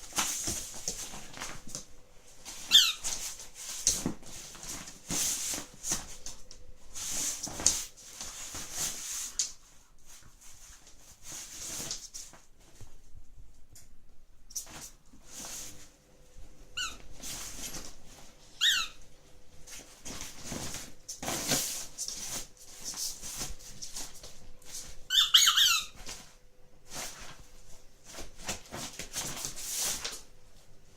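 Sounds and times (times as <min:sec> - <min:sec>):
rustling handling noise: 0:00.0 - 0:30.9
squeaky toy squeaking: 0:02.7 - 0:03.0, 0:16.8 - 0:17.0, 0:18.6 - 0:19.0, 0:25.1 - 0:26.0.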